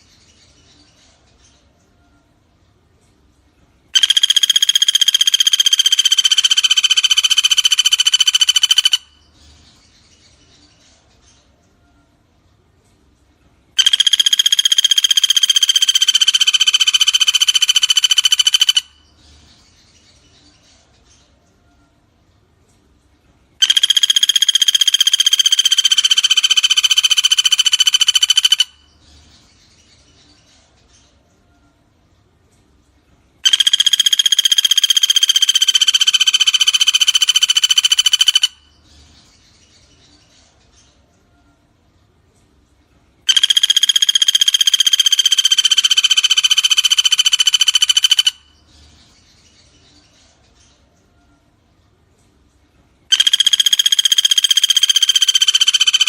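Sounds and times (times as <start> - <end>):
frogs and insects chorus: 4.0 - 9.1, 13.8 - 19.0, 23.6 - 28.8, 33.4 - 38.6, 43.3 - 48.5, 53.1 - 56.0
woodpecker rattling trill: 4.0 - 9.2, 13.8 - 19.1, 23.6 - 29.0, 33.4 - 38.8, 43.3 - 48.6, 53.1 - 56.0.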